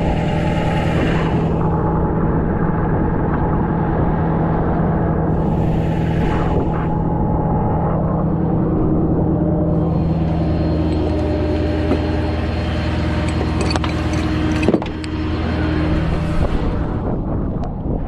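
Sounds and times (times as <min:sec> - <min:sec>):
vehicle engine running: 0:09.7 - 0:17.4.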